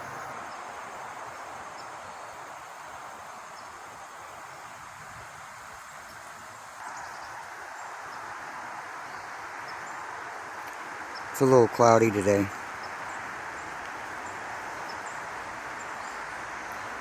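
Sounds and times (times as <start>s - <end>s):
even rushing hiss: 0.0s - 17.0s
faint insects: 0.0s - 17.0s.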